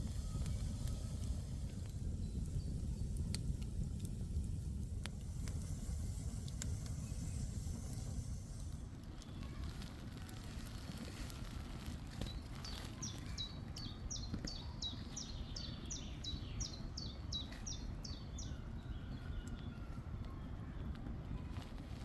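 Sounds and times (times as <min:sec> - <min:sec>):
low background rumble: 0:00.0 - 0:22.0
songbird whistling: 0:12.2 - 0:20.0.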